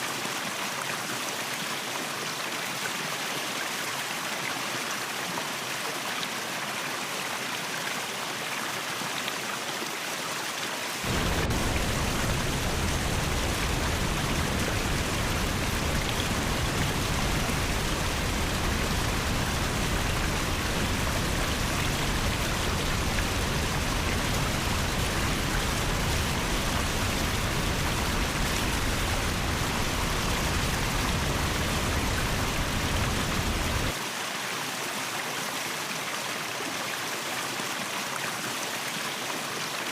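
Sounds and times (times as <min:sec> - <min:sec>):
waterfall rushing: 0:11.0 - 0:34.0.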